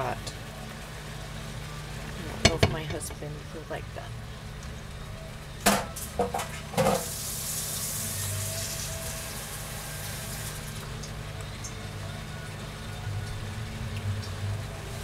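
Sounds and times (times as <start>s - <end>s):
clattering knocks: 2.4s - 3.2s
food sizzling in a pan: 6.0s - 11.0s.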